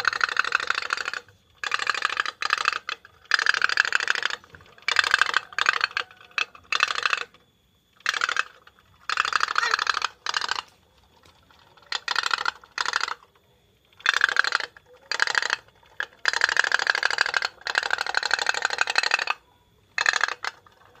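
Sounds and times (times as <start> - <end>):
small mechanism clicking rattle: 0.0 - 21.0.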